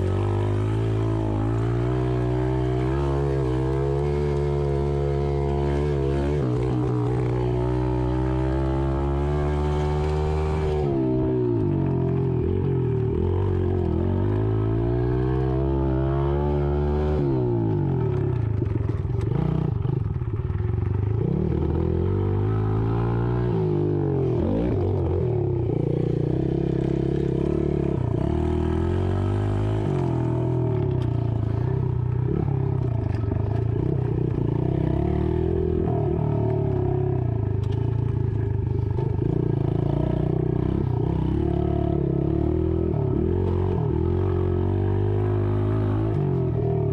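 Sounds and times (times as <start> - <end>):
dirt bike engine revving: 0.0 - 17.9.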